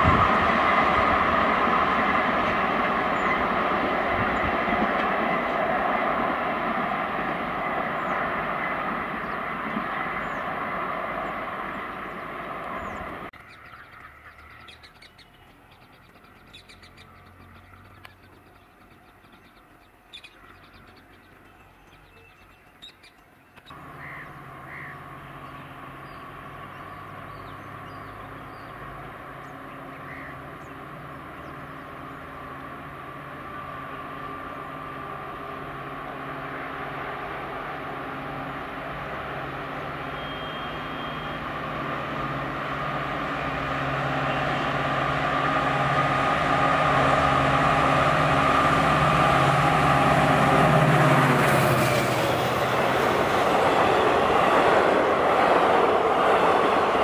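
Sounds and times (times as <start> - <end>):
diesel locomotive engine humming: 0.0 - 57.0
train rumbling: 0.0 - 57.0
birds chirping and cawing: 7.8 - 32.3.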